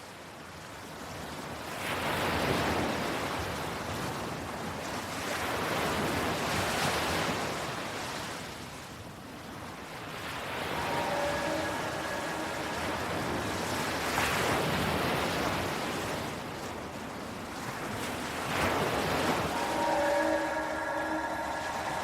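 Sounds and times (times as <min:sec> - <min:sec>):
ocean waves: 0:00.8 - 0:22.0
faint held tones: 0:10.2 - 0:14.6, 0:18.8 - 0:22.0.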